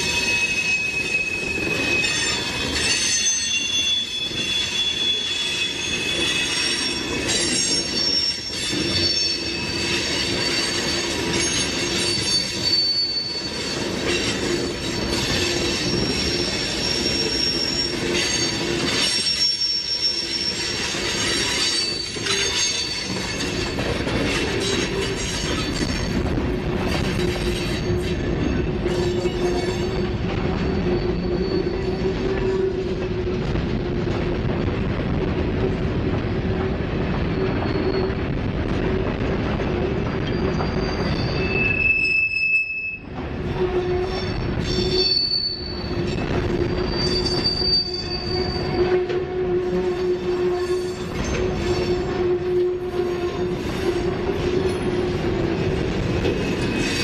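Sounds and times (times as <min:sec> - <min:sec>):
high wheel squealing: 0:00.0 - 0:26.1, 0:40.2 - 0:49.0
freight train wheels rumbling: 0:00.0 - 0:57.0.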